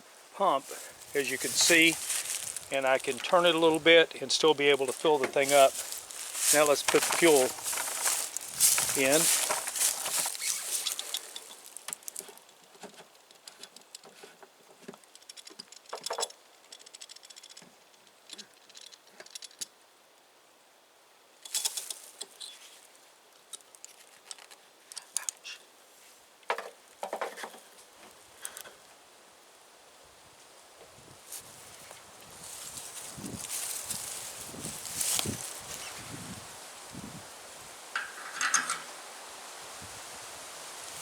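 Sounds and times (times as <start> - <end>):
pump and hose clicks and rattles: 4.8 - 19.7, 21.4 - 22.4, 23.4 - 25.4, 28.4 - 28.9, 37.9 - 39.0.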